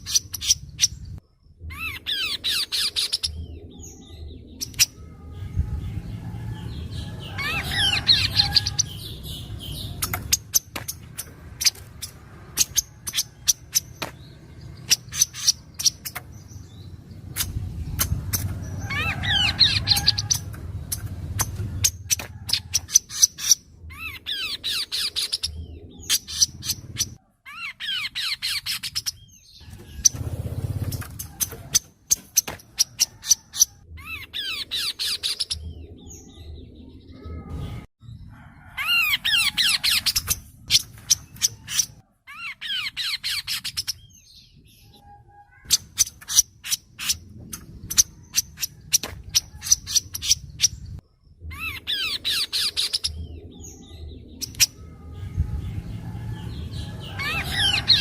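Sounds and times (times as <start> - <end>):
bird chattering: 0.0 - 1.1, 7.0 - 35.7.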